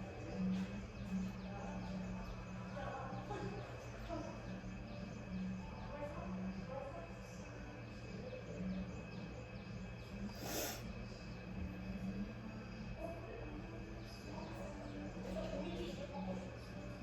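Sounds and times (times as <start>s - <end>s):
indistinct background chatter: 0.0s - 17.0s
short hiss: 10.4s - 10.8s.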